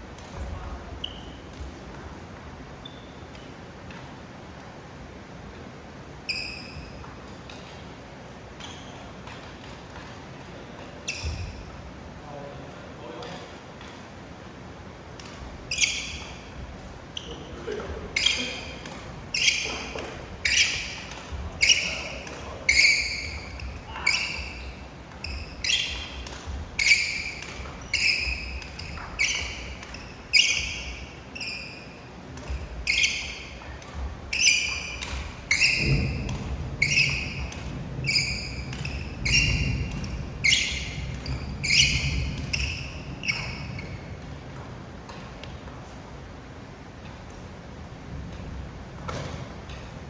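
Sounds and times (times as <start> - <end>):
racket hitting shuttlecock: 15.0 - 45.8.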